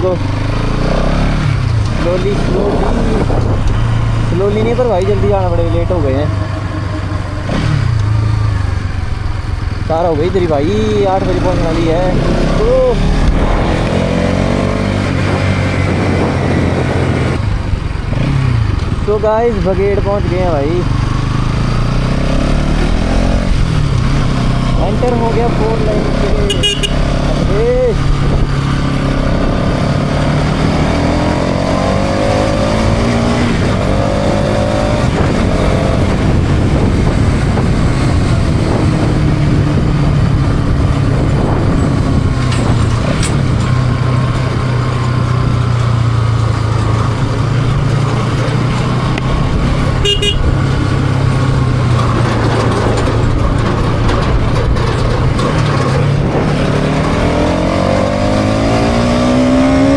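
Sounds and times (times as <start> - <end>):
motorcycle engine accelerating: 0.0 - 59.9
wind rush: 1.4 - 9.9, 12.2 - 20.4, 26.0 - 45.6
short horn toot: 26.5 - 27.1, 50.0 - 50.5.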